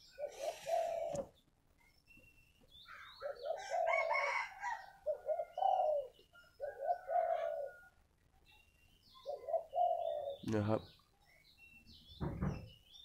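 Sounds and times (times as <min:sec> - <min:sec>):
dove cooing: 0:00.0 - 0:01.4, 0:03.2 - 0:08.0, 0:09.2 - 0:10.5.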